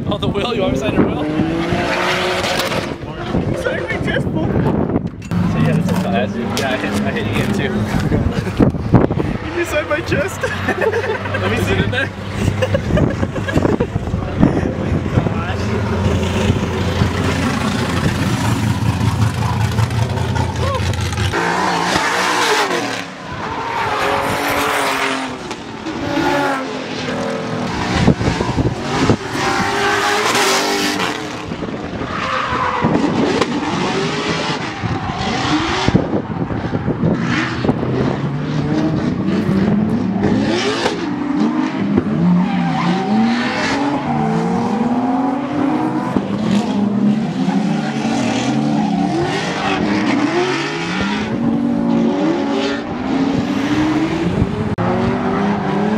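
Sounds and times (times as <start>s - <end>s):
car engine revving hard: 0.8s - 3.0s, 14.9s - 32.1s, 32.8s - 55.9s
tires squealing and skidding: 15.5s - 54.2s.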